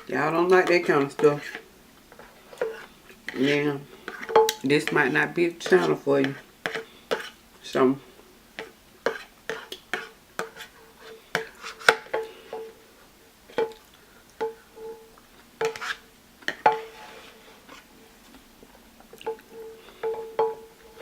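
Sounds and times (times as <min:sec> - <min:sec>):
bowl ringing: 0:14.4 - 0:15.2, 0:19.3 - 0:21.0.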